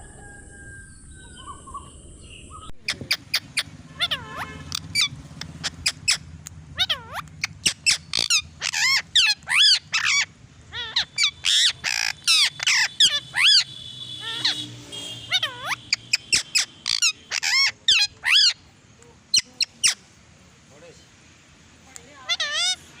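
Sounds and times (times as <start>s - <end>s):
parrot squawking: 2.5s - 18.7s, 19.3s - 20.1s, 22.1s - 23.0s.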